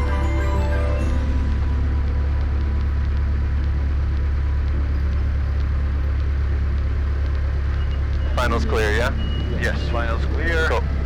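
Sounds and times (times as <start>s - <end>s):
propeller plane engine droning: 1.0s - 11.0s.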